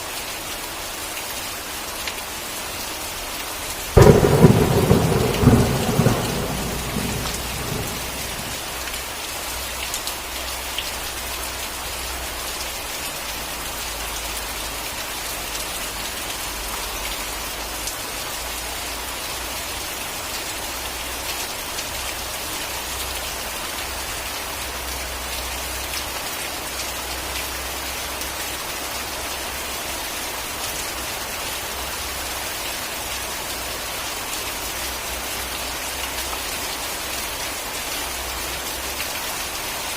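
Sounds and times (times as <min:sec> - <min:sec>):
steady rain: 0:00.0 - 0:39.9
thunder rumbling: 0:04.0 - 0:08.8.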